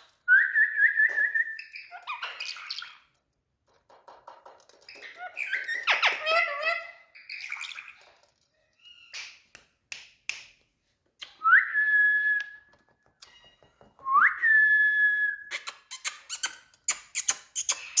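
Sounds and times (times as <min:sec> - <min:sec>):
parrot clicks and chirps: 0:15.5 - 0:18.0.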